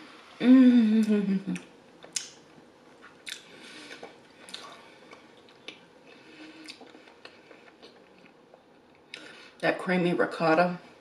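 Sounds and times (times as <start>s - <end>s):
wet mouth chewing sounds: 3.0s - 5.9s, 6.5s - 9.3s.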